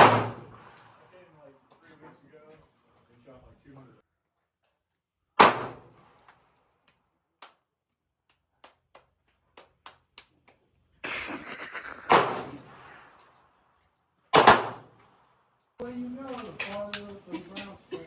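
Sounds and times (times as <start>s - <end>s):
pistol shots echoing indoors: 0.0s - 0.9s, 5.4s - 6.3s, 14.4s - 15.0s.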